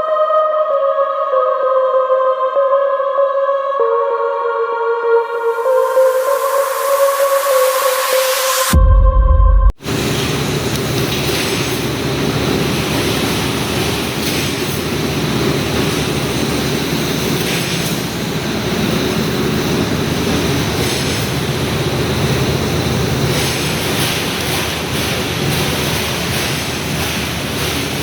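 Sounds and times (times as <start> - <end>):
high-pitched hisses: 5.6 - 8.7
welding machine rumble and clatter: 9.8 - 28.0.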